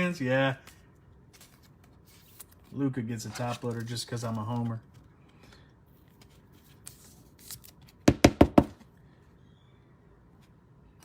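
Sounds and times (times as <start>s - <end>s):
cards rustling: 0.4s - 8.0s.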